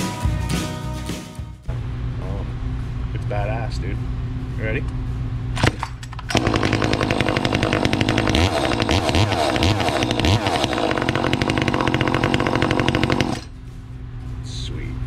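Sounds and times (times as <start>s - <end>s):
chainsaw revving at full throttle: 6.3s - 13.5s.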